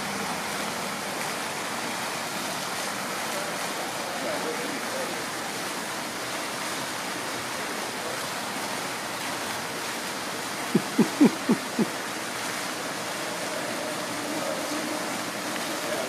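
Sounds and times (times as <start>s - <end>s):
short low falling calls: 10.7s - 12.1s.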